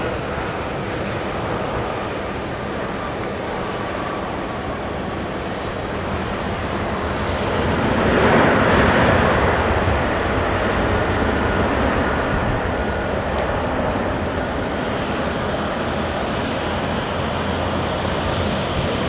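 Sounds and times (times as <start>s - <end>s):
jet airliner engine roar: 0.0s - 19.0s.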